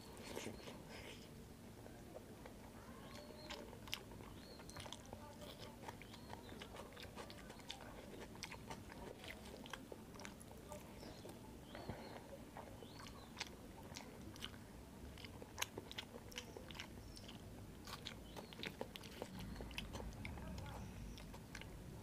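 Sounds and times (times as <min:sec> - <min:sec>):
chewing with mouth clicks: 0:00.0 - 0:22.0
lip smacks: 0:11.1 - 0:21.8.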